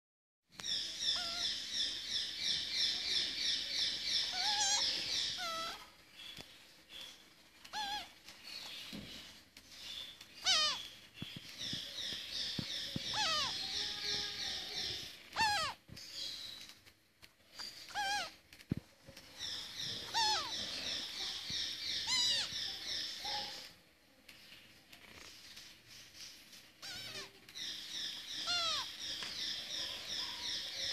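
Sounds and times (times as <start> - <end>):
bird chirping: 0.5 - 18.4, 19.1 - 23.8, 24.7 - 30.9
wavering bird calls: 0.8 - 6.4, 7.0 - 9.0, 10.0 - 15.8, 17.6 - 18.4, 19.4 - 23.7, 26.8 - 30.9.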